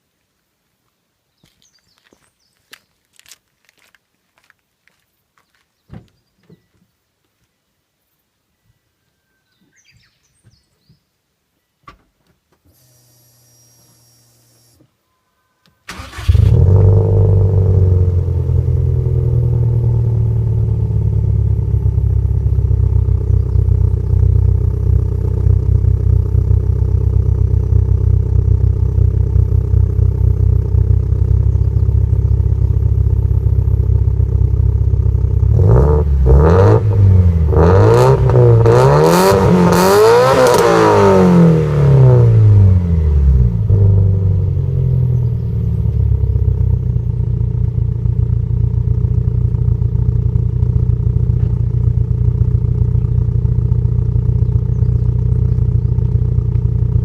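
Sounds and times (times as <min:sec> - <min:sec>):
engine throttle blips: 0:15.8 - 0:57.0
car engine idling: 0:15.9 - 0:37.6, 0:41.6 - 0:57.0.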